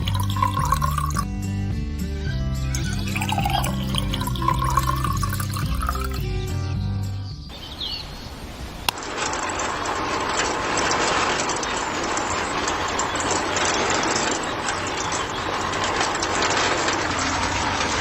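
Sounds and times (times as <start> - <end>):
mechanical clattering: 0.0 - 1.2, 8.9 - 18.0.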